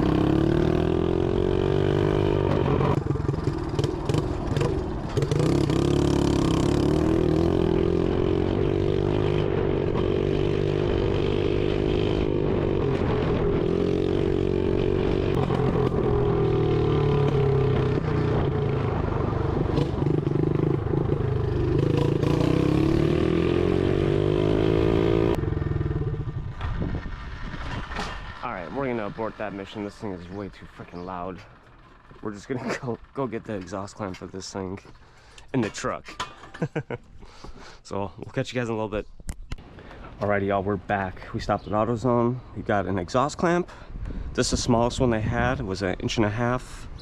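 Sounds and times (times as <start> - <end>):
dirt bike engine revving: 0.0 - 30.2.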